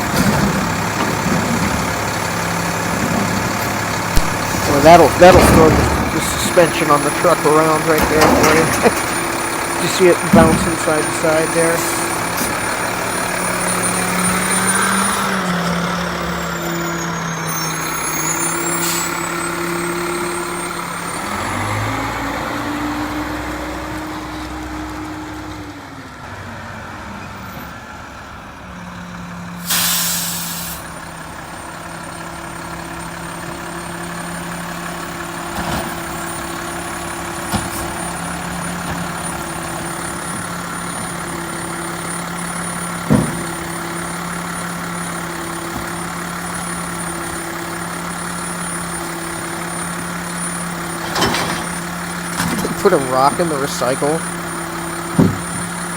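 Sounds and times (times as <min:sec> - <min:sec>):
truck diesel engine idling: 0:00.0 - 0:26.2, 0:27.9 - 0:55.9
air brakes hissing: 0:04.2 - 0:12.6, 0:17.0 - 0:19.5, 0:29.6 - 0:31.0.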